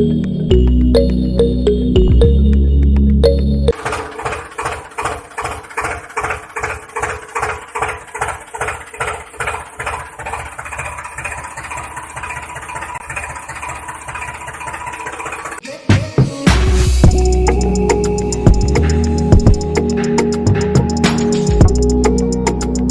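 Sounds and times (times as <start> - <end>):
small motor running: 3.8 - 15.6.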